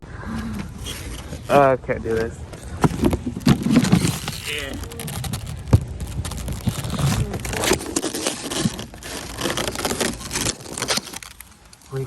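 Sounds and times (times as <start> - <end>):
plastic wrap crinkling: 2.6 - 12.0.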